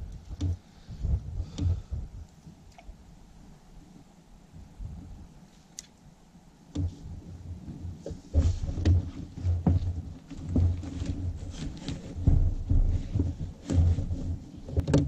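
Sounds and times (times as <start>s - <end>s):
paddle strokes: 6.6s - 15.0s
paddle knocking against hull: 8.0s - 15.0s.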